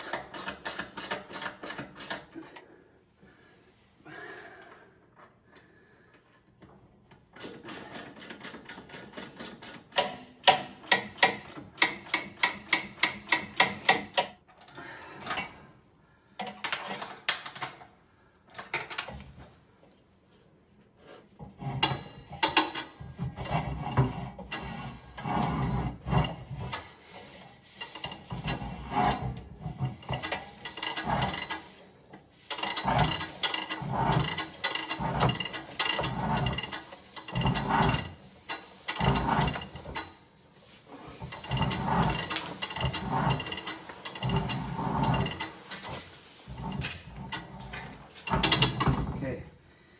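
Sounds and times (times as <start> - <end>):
metal scraping: 32.4 - 49.4.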